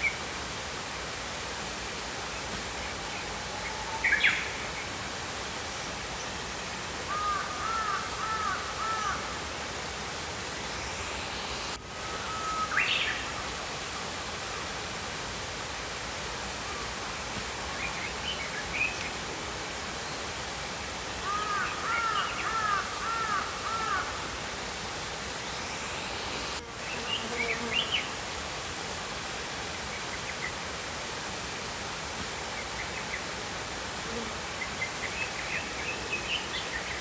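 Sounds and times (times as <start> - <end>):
stream flowing: 0.0 - 37.0.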